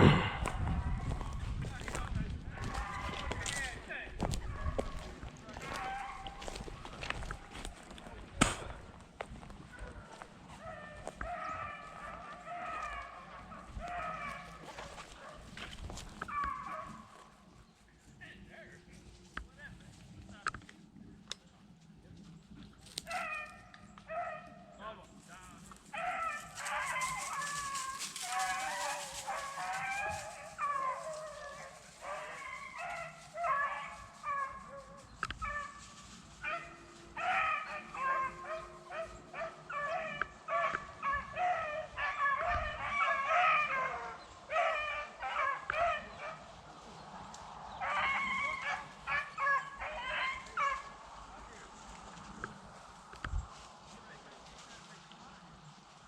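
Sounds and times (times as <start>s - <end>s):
beagles baying and yipping: 0.0s - 8.3s, 9.2s - 18.0s, 22.8s - 24.8s, 25.5s - 53.7s.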